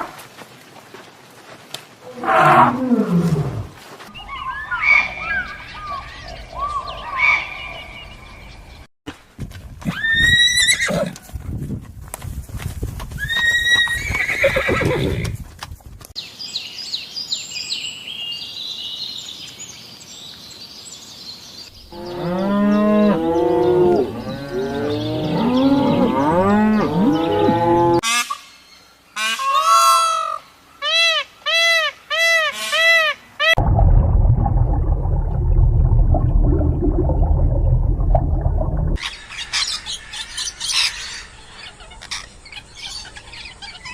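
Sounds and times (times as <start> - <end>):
low rough rumbling: 33.6 - 39.0.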